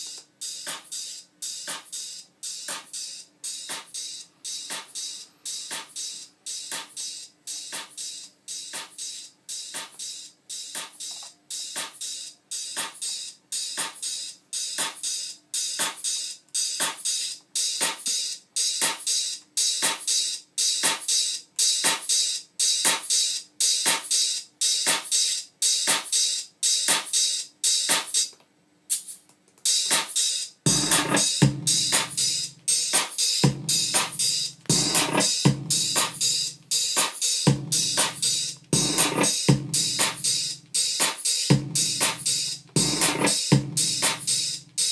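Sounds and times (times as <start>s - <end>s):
drum machine beat: 0.0s - 28.3s, 28.9s - 44.9s
heavy bass drum: 30.7s - 44.9s.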